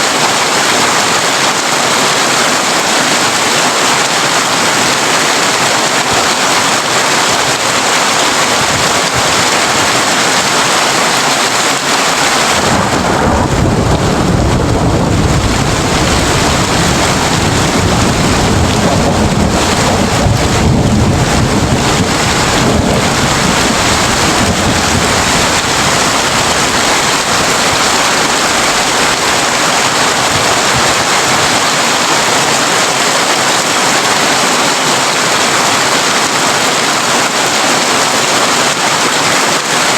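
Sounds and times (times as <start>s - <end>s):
heavy rain on a tin roof: 0.0s - 39.9s
thunder rumbling: 12.2s - 31.8s.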